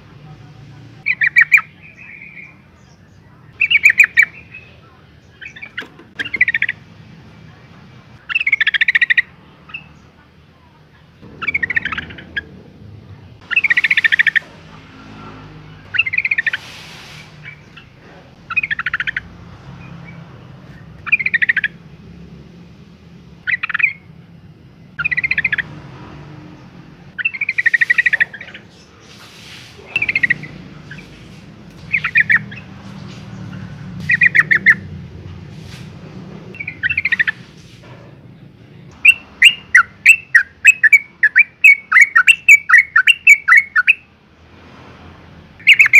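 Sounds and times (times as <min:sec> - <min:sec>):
bird chattering calls: 0:01.0 - 0:02.9, 0:03.5 - 0:06.8, 0:08.2 - 0:10.1, 0:11.2 - 0:12.7, 0:13.4 - 0:14.7, 0:15.8 - 0:22.0, 0:23.4 - 0:24.1, 0:25.0 - 0:25.8, 0:27.0 - 0:35.0, 0:36.6 - 0:37.7, 0:39.0 - 0:44.1, 0:45.6 - 0:45.9.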